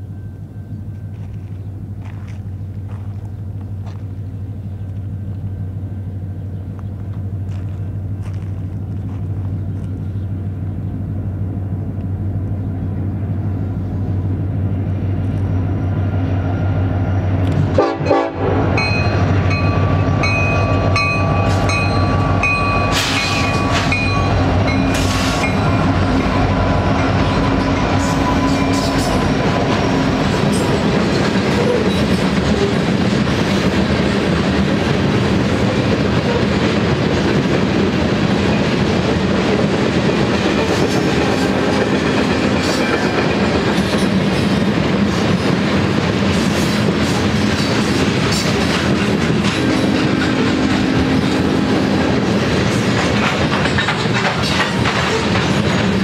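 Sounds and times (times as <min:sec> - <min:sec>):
diesel locomotives droning: 0:00.0 - 0:56.0
rail cars clattering: 0:00.0 - 0:56.0
train cars clanking: 0:17.2 - 0:56.0
wheels ringing: 0:18.8 - 0:32.7.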